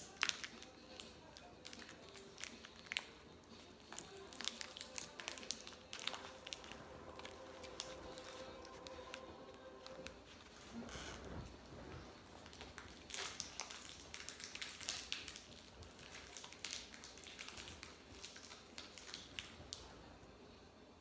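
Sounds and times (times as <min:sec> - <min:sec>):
granola bar crunching in wrapper: 0:00.0 - 0:09.2, 0:12.3 - 0:19.8.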